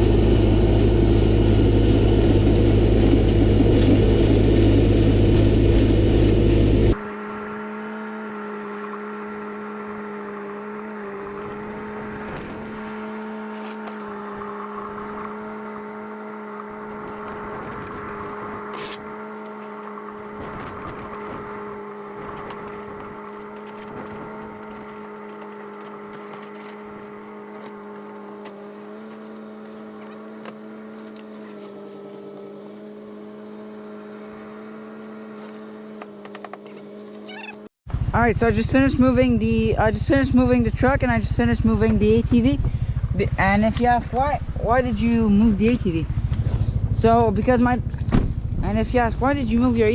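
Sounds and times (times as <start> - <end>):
vehicle engine running loudly: 0.0 - 49.9.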